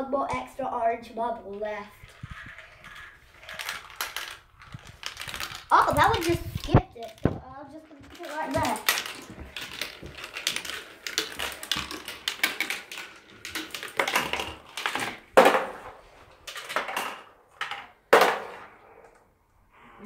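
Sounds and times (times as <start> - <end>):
marbles rolling down marble run: 1.5 - 18.7.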